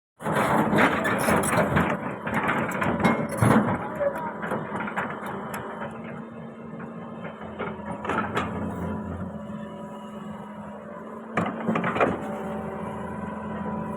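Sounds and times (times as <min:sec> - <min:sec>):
metal clanks and knocks: 0:00.9 - 0:06.2
machine engine humming: 0:03.8 - 0:13.9.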